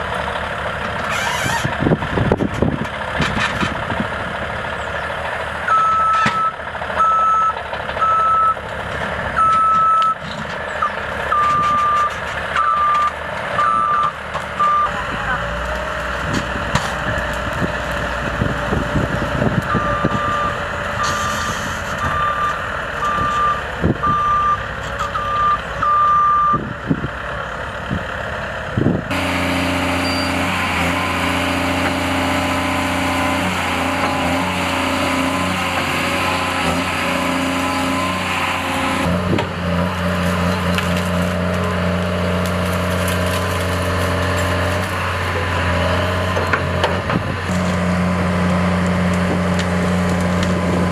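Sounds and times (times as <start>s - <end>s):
reversing alarm beeping: 5.7s - 8.6s, 9.4s - 10.2s, 10.8s - 15.0s, 22.0s - 24.6s, 25.2s - 26.6s
machine engine running: 28.8s - 50.9s.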